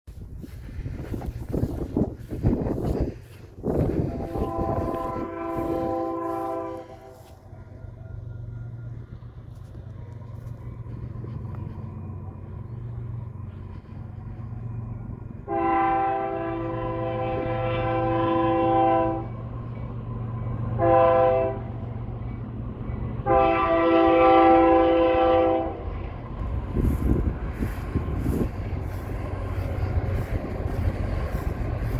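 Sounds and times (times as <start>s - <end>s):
train rumbling: 0.0s - 31.9s
locomotive air horn: 3.8s - 8.8s, 15.4s - 19.4s, 20.7s - 21.9s, 23.2s - 25.9s.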